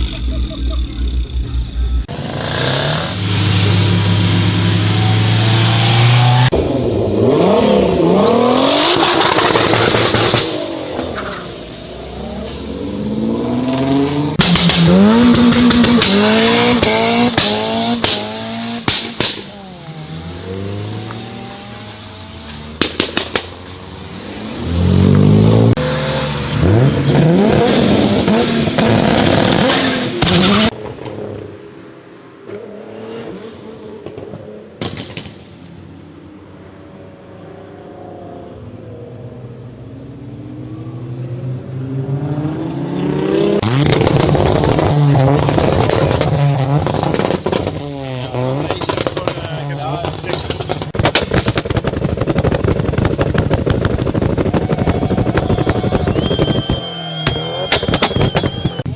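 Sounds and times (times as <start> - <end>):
car engines revving: 0.0 - 58.9
exhaust pops and bangs: 14.4 - 19.6, 22.7 - 23.7, 34.0 - 35.5, 43.6 - 58.9.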